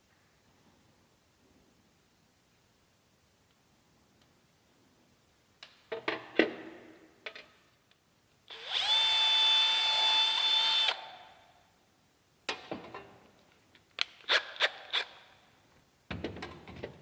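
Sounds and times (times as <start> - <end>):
power tool motor spinning: 8.5 - 11.0.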